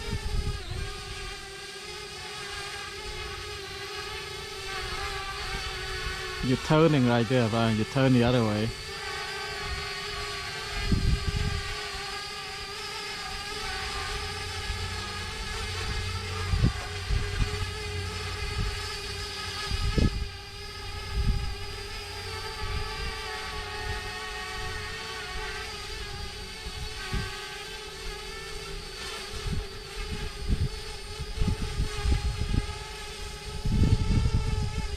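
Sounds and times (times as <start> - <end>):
wind rumbling on microphone: 0.0 - 1.4, 9.6 - 12.1, 13.2 - 34.9
drone propellers whining: 0.0 - 34.9.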